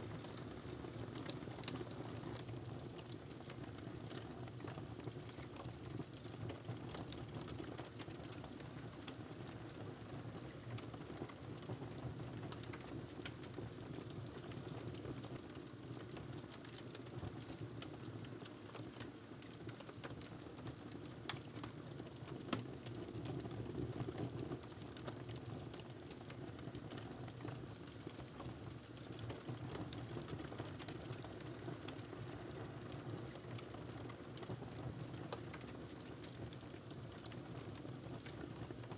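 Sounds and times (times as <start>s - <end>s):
wood fire crackling: 12.3s - 23.9s, 24.6s - 38.9s.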